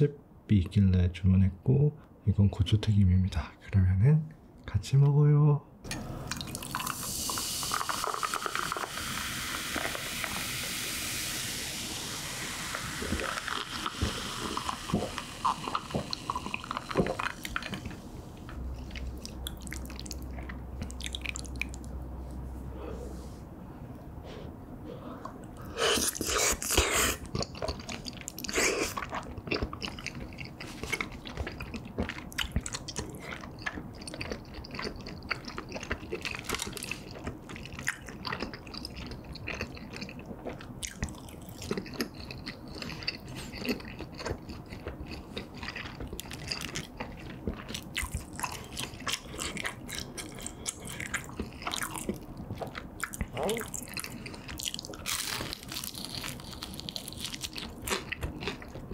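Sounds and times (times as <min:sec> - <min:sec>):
biting and chewing food: 0:26.0 - 0:58.9.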